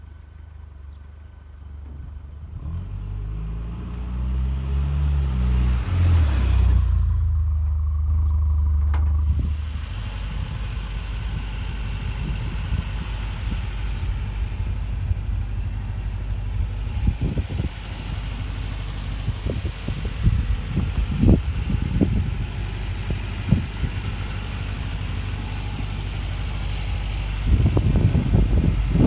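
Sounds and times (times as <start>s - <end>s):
truck engine idling: 6.0s - 29.0s.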